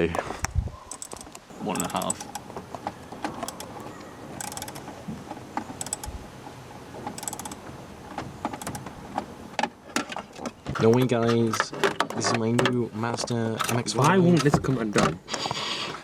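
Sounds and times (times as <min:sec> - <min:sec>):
ratchet clicking: 0:00.9 - 0:02.4, 0:03.4 - 0:03.8, 0:04.4 - 0:04.9, 0:05.7 - 0:06.2, 0:07.1 - 0:07.6, 0:08.5 - 0:08.8
clicks and knocks of car parts: 0:00.9 - 0:15.2.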